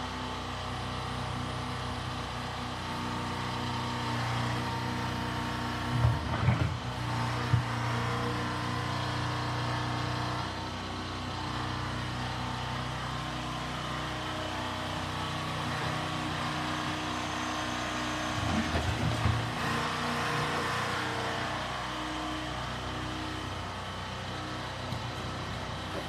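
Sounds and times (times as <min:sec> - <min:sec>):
heavy equipment engine running: 0:00.2 - 0:26.0.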